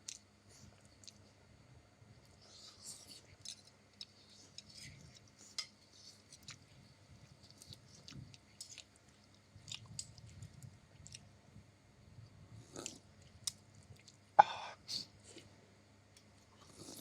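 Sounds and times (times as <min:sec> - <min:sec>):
person chewing: 0:02.3 - 0:11.3.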